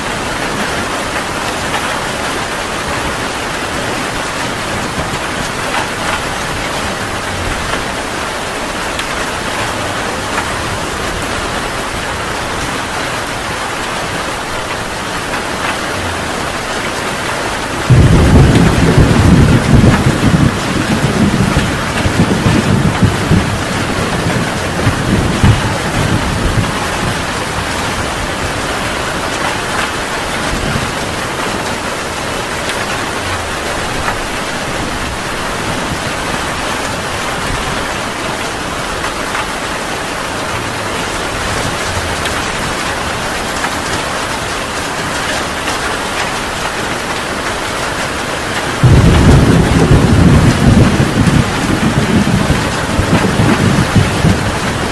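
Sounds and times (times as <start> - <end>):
heavy rain: 0.0 - 54.9
low rumble of thunder: 17.8 - 31.6, 48.8 - 54.9.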